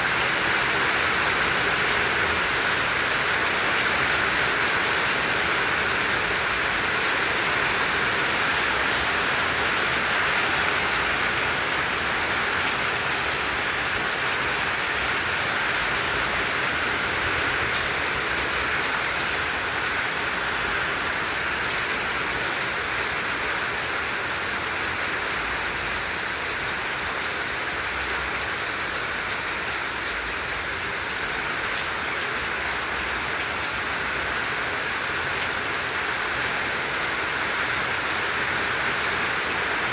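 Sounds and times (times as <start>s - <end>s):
heavy rain hissing: 0.0s - 25.0s.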